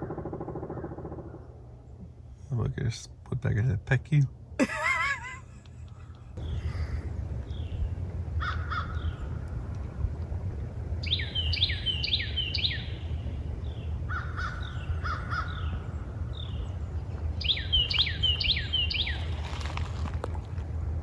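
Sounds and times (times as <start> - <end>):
birds calling harshly: 0.0 - 2.0, 6.0 - 9.5, 11.0 - 19.7
steady low rumble: 0.0 - 21.0.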